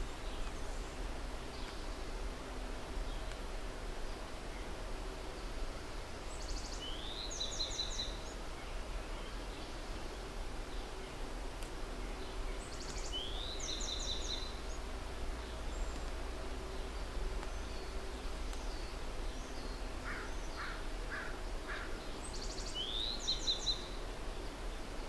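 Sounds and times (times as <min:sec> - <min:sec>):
songbird singing: 0:00.0 - 0:02.2, 0:06.3 - 0:11.2, 0:12.0 - 0:25.0.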